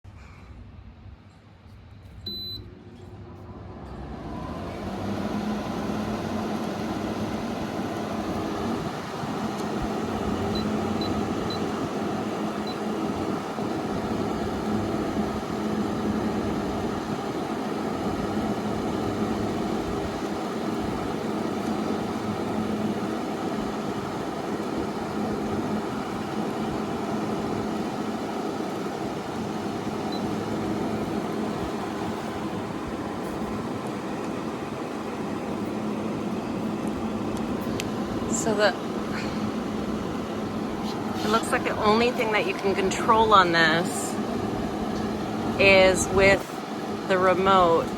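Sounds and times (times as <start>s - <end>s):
air conditioner running: 0.1s - 47.9s
short beeps: 2.2s - 2.7s.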